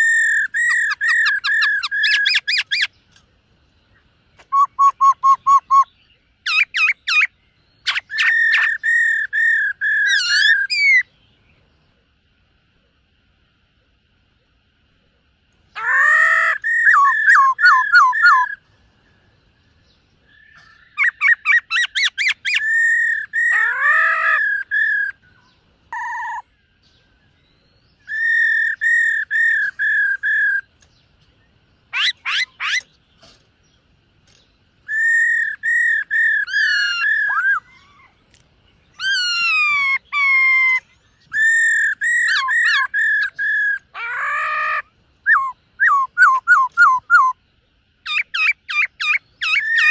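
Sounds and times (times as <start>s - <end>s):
bird singing whistled phrases: 4.4s - 11.1s, 15.8s - 18.6s, 27.4s - 30.7s, 34.8s - 38.1s, 38.9s - 47.4s, 48.1s - 49.9s.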